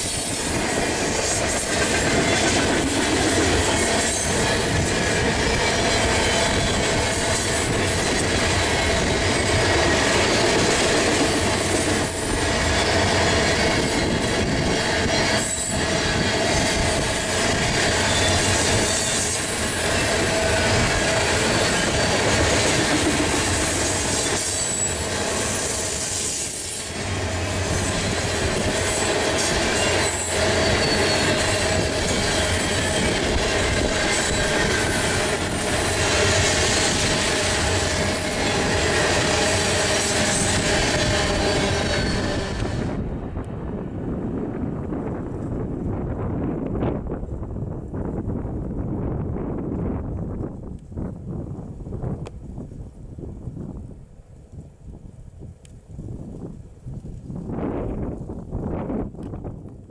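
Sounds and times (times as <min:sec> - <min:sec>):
sharp clacks of train cars: 0:00.0 - 0:43.6
steel wheels on rail: 0:00.0 - 0:48.3
high-pitched wheel squeal: 0:23.8 - 0:26.9, 0:29.4 - 0:33.3, 0:34.0 - 0:43.0.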